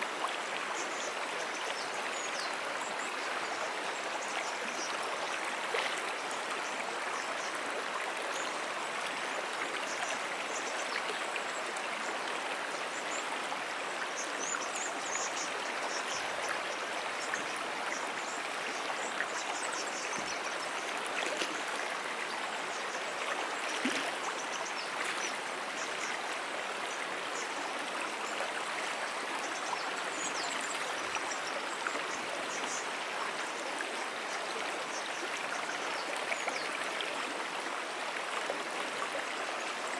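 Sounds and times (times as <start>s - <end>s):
brook water flowing: 0.0s - 39.9s.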